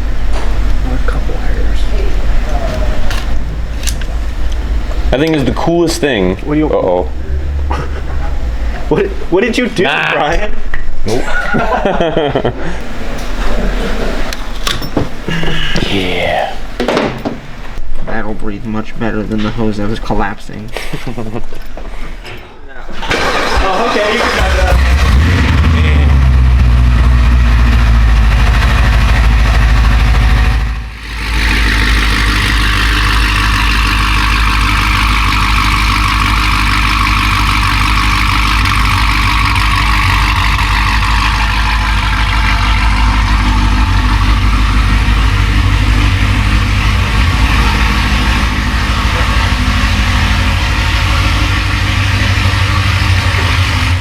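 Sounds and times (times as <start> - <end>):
car engine idling: 0.0 - 10.4, 23.0 - 54.0.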